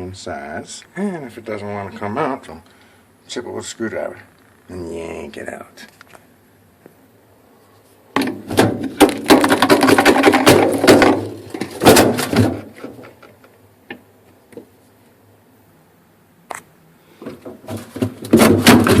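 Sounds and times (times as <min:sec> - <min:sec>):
knocks: 0:17.3 - 0:19.0.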